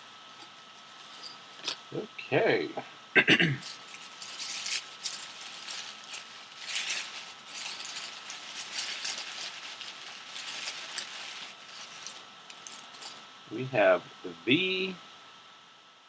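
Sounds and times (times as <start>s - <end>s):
loud packaging scrapes: 0.0s - 1.8s, 3.6s - 13.2s
packaging rustling and crinkling: 0.0s - 1.8s, 3.6s - 13.2s.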